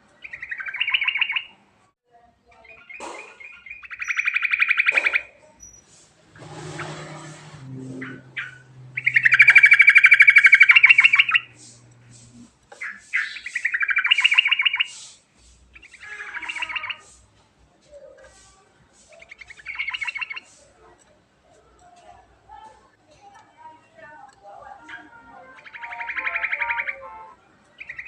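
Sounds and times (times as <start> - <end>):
bulbul chattering song: 0.2 - 1.6, 2.6 - 17.3, 18.2 - 20.8, 24.3 - 28.0.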